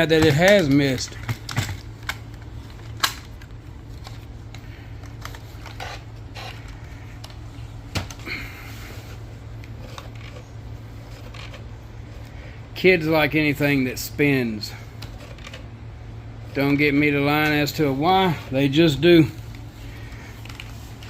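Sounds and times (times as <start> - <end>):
plastic parts clicking and knocking: 0.0 - 8.2, 15.0 - 15.7
steady low hum: 0.0 - 21.0.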